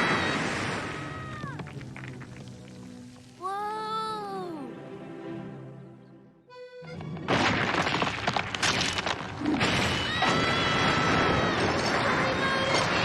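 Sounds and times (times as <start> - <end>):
loud crashing and smashing: 7.3 - 13.0.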